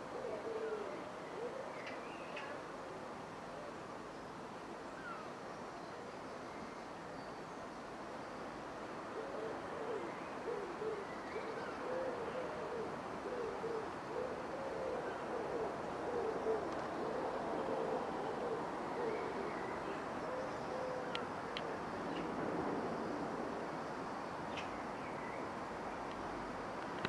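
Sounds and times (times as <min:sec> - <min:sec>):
pigeon cooing: 0:00.0 - 0:01.8, 0:09.2 - 0:21.8.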